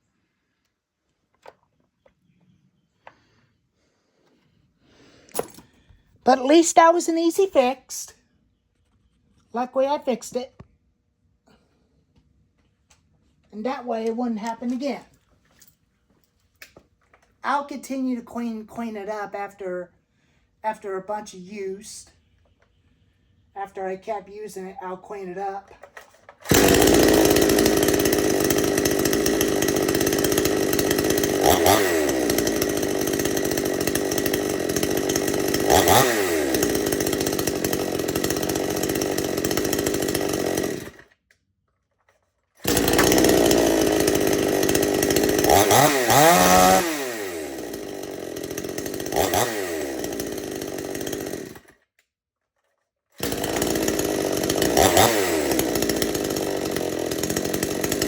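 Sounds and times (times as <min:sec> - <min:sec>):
chainsaw idling and revving: 0:26.4 - 0:41.1, 0:42.6 - 0:51.8, 0:53.2 - 0:58.0.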